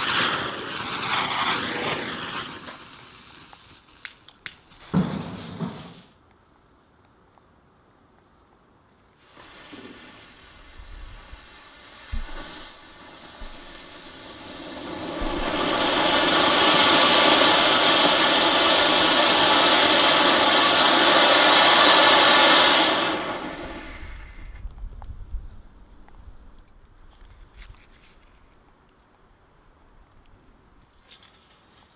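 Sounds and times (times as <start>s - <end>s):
firework hissing: 0.0s - 6.2s, 9.2s - 24.6s.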